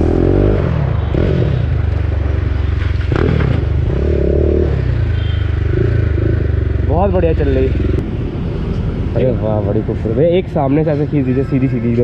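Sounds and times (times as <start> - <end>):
motorcycle engine running: 1.0 - 8.0.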